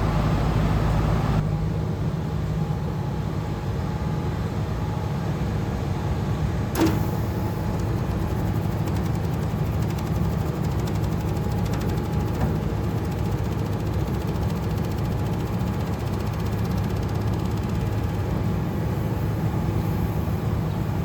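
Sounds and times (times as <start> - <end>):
diesel truck engine running: 0.0 - 1.6, 6.8 - 21.0
sharp click: 6.8 - 15.2.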